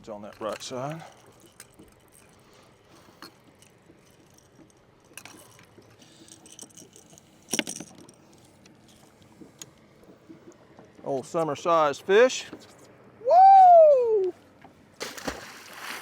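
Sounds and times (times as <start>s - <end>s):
fishing gear clattering: 0.2s - 9.8s
fishing gear clinking and knocking: 0.2s - 11.3s.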